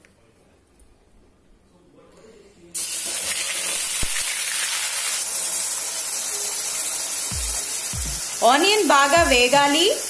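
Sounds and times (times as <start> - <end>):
onion paste sizzling in hot oil: 2.8 - 10.0.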